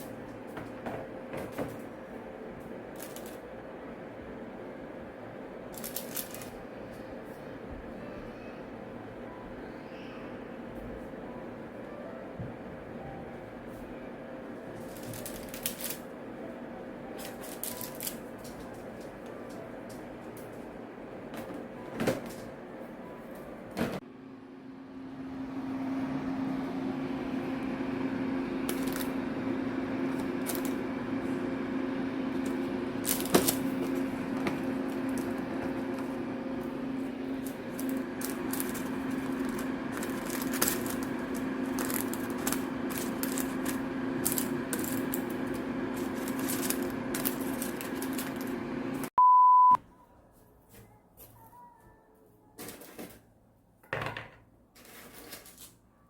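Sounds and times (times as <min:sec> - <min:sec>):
appliance motor and fan humming: 0:00.0 - 0:49.2, 0:49.8 - 0:56.0
electronic beep: 0:49.2 - 0:49.8.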